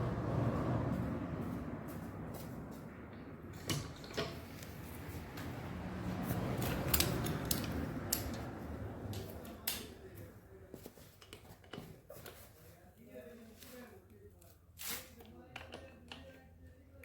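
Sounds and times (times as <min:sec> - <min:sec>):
tools and metal parts clicking: 0:06.5 - 0:08.5.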